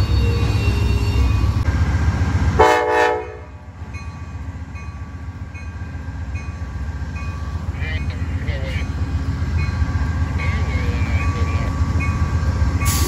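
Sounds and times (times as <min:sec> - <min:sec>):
diesel train rumbling: 0:00.0 - 0:13.0
train horn blast: 0:02.6 - 0:03.6.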